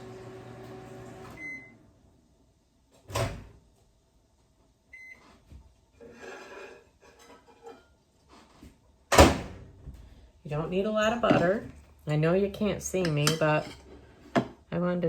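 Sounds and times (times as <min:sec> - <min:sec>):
microwave oven hum: 0:00.0 - 0:02.1.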